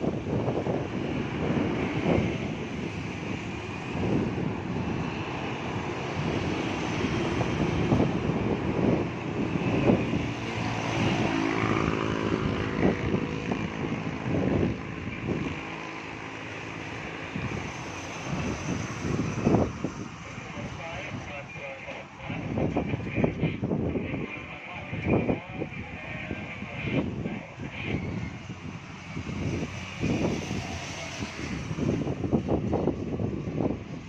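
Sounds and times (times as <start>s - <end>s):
distant airliner engines rushing: 0.0s - 34.0s
wind buffeting microphone: 0.0s - 34.0s.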